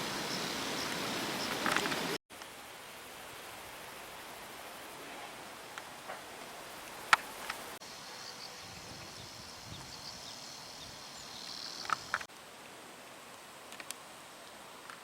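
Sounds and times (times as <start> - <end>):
insects chirping: 0.0 - 2.2, 3.0 - 12.3.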